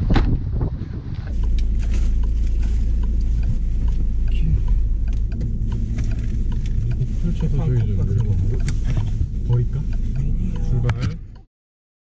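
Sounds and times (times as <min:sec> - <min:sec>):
car engine idling: 0:01.0 - 0:11.5
faint ticks: 0:01.3 - 0:11.5.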